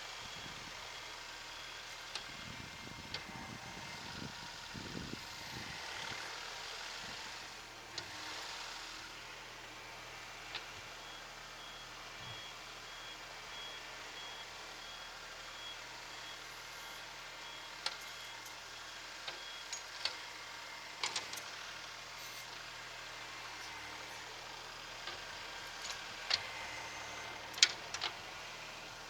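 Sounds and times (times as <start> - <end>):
reversing buzzer beeping: 11.0 - 20.4, 25.2 - 27.9
tractor engine running: 14.1 - 29.0.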